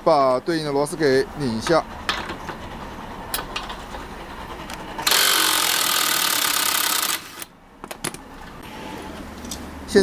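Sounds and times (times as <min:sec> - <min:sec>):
electric screwdriver running: 0:05.1 - 0:07.5.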